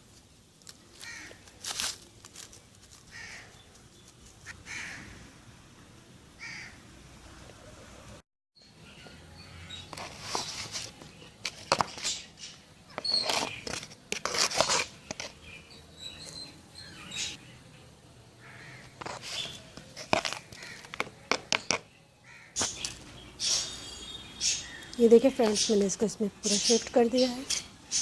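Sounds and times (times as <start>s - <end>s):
soil scraping and rustling: 0.0s - 4.5s, 9.9s - 12.3s, 13.0s - 15.6s, 18.5s - 21.8s.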